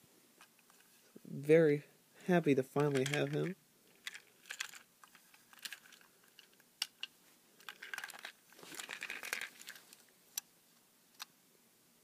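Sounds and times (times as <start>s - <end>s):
plastic toy clicks: 2.8s - 9.5s
crinkly rustling: 2.8s - 10.1s.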